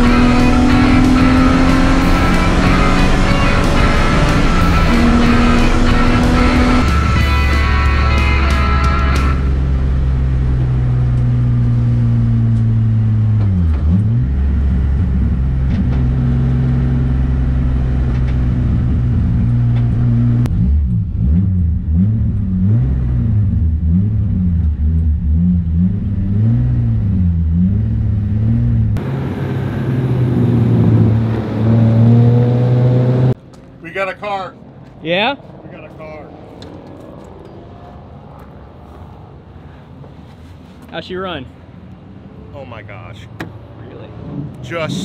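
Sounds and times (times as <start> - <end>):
race car engine revving: 0.0 - 33.4, 43.3 - 45.0.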